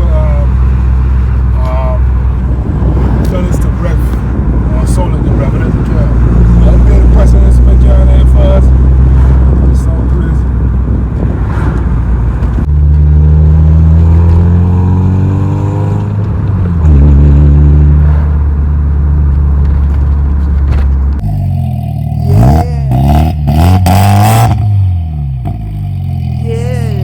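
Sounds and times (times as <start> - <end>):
car engine exhaust drone: 0.0 - 27.0
engine revving: 4.8 - 19.2, 21.1 - 27.0.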